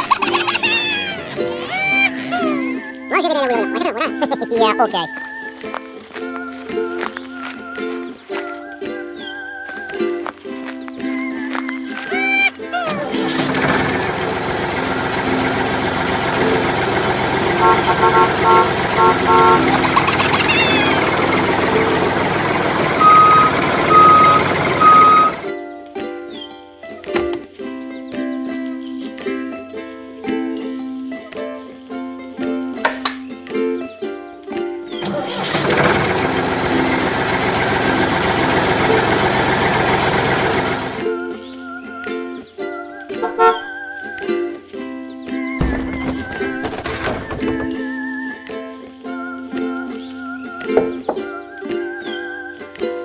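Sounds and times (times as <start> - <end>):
falling squeak: 0.0 - 2.8, 19.6 - 21.3, 22.9 - 25.4, 45.6 - 48.0
steady engine-like noise: 0.0 - 2.8, 10.6 - 25.5, 35.0 - 41.2
vehicle horn toots: 17.0 - 21.5, 22.9 - 25.4, 43.2 - 43.7.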